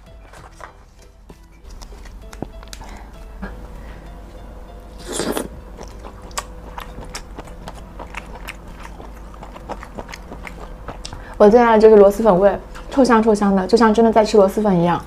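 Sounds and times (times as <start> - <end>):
close chewing with crisp clicks: 5.8 - 11.5.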